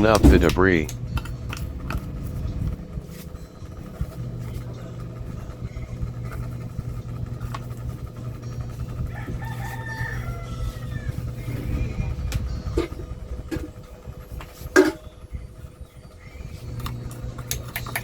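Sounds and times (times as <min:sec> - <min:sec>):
steady low hum: 0:00.0 - 0:18.0
rooster crowing: 0:08.8 - 0:12.0.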